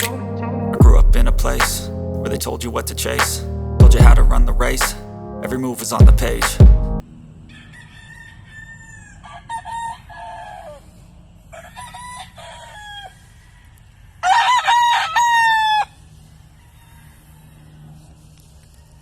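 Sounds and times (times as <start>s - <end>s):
roosters crowing: 7.4s - 18.1s.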